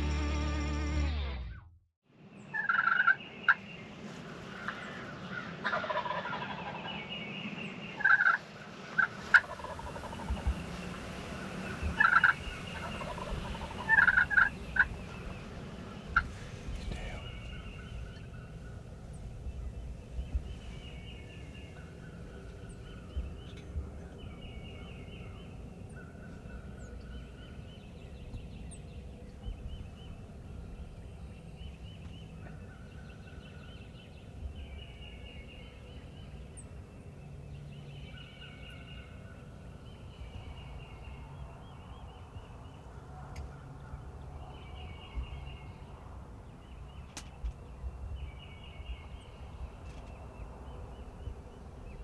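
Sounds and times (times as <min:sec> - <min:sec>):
turkeys gobbling: 0:02.6 - 0:03.2, 0:04.6 - 0:07.0, 0:08.0 - 0:08.4, 0:09.0 - 0:18.5
songbird chirps: 0:09.0 - 0:52.0.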